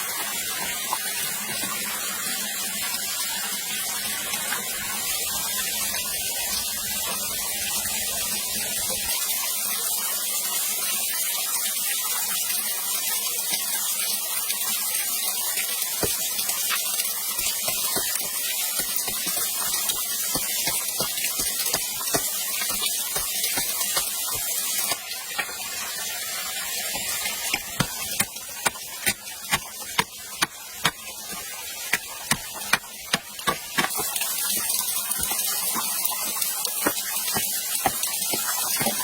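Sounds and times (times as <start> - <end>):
rushing spraying water: 14.4 - 39.0.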